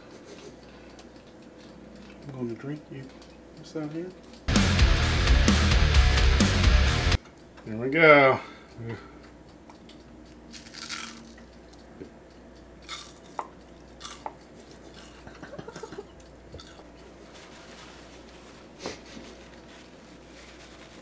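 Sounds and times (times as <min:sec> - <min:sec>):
person chewing crunchy chip: 0:10.5 - 0:11.5, 0:12.8 - 0:15.9, 0:16.6 - 0:16.9.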